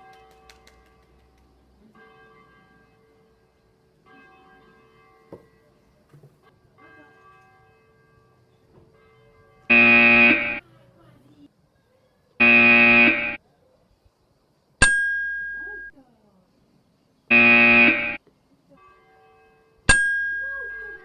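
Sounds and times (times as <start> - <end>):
loud buzzing tone: 9.7 - 10.6, 12.4 - 13.4, 17.3 - 18.2.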